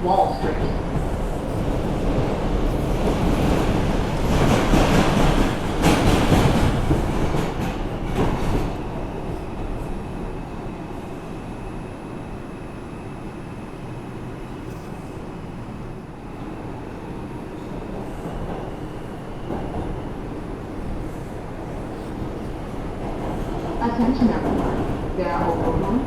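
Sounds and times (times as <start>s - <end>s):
subway car running on rails: 0.0s - 26.0s
train hum with thin whine: 0.0s - 26.0s
knocks of train: 3.0s - 9.0s.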